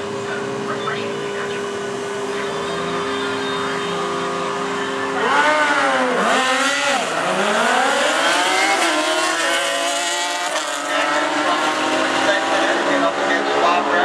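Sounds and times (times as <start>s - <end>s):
sport bike engines accelerating: 0.0s - 14.0s.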